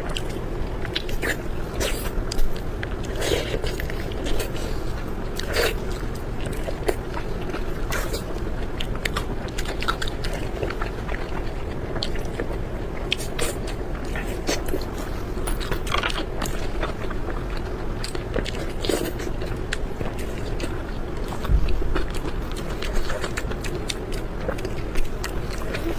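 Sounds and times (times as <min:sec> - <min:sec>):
chewing and biting: 0:00.0 - 0:25.9
steady low hum: 0:00.0 - 0:25.9.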